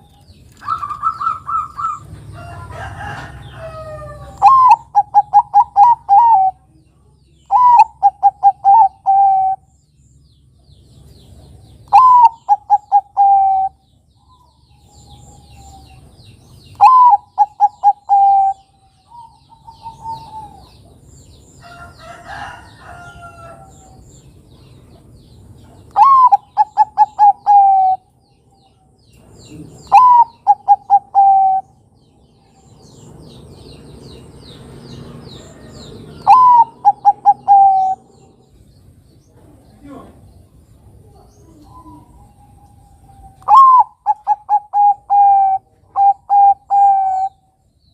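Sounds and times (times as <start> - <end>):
dove cooing: 0.5 - 2.2, 2.8 - 6.7, 7.5 - 9.7, 11.9 - 13.8, 16.7 - 21.0, 25.9 - 28.1, 29.5 - 31.8, 35.6 - 38.3, 41.0 - 47.5.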